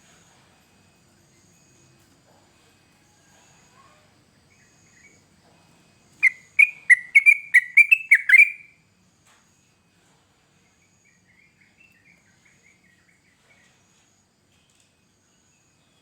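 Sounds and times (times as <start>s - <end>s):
bird singing bubbly notes: 6.2s - 8.7s
faint insect trilling: 6.2s - 8.7s.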